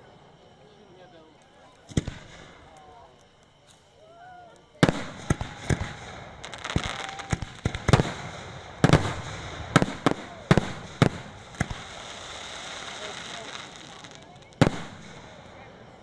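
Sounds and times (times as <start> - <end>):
firework crackling: 1.3 - 16.0
firework shells bursting: 4.6 - 15.6.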